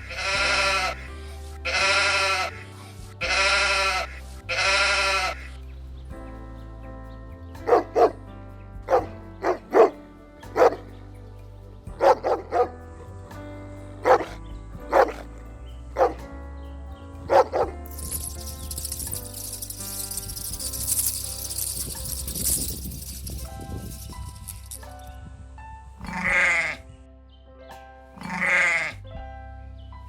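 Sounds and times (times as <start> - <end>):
animal barking: 0.0 - 1.1, 1.7 - 2.6, 3.2 - 5.5, 7.6 - 8.2, 8.9 - 10.0, 10.6 - 10.8, 12.0 - 12.7, 14.0 - 15.4, 16.0 - 16.2, 17.3 - 21.9, 26.0 - 26.8, 28.2 - 29.0
soft background music: 0.0 - 30.0.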